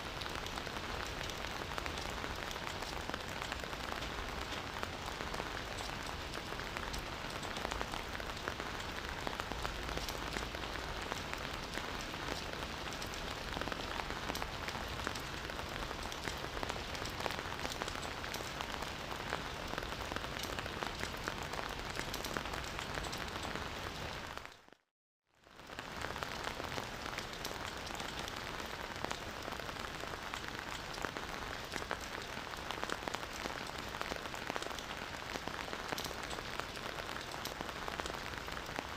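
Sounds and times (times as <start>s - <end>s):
rain patter on surfaces: 0.0s - 38.9s.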